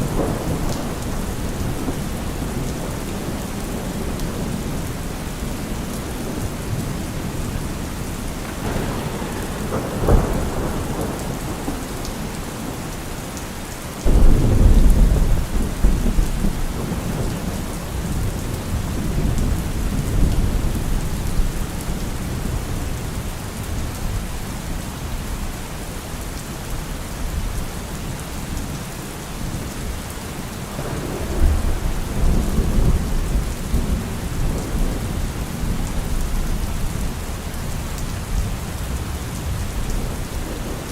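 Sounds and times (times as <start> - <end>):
thunder: 0.0 - 24.2, 30.6 - 40.9
heavy rain on car roof: 0.0 - 40.9.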